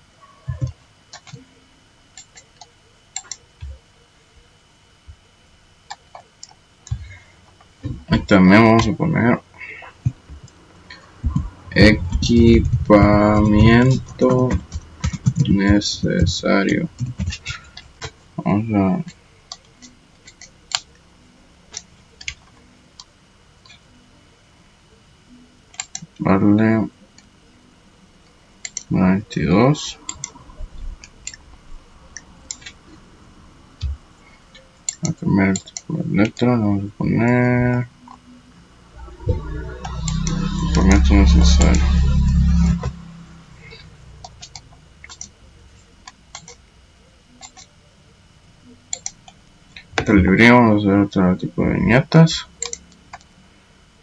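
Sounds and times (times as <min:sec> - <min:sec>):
faint low hum: 0:00.0 - 0:54.0
computer clicks: 0:00.5 - 0:01.5, 0:02.2 - 0:03.8, 0:10.9 - 0:18.1, 0:19.5 - 0:21.0, 0:25.7 - 0:26.2, 0:28.6 - 0:28.9, 0:30.0 - 0:30.4, 0:32.1 - 0:32.9, 0:33.8 - 0:36.5, 0:43.7 - 0:45.4, 0:46.0 - 0:46.6, 0:47.3 - 0:47.7, 0:48.9 - 0:49.4, 0:52.6 - 0:53.3
mouse and keyboard clicks: 0:47.4 - 0:47.7.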